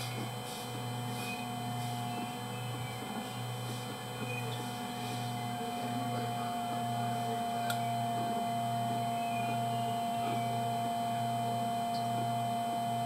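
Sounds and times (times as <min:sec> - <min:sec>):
electrical whine: 0:00.0 - 0:13.0
pulsing low hum: 0:00.0 - 0:13.0.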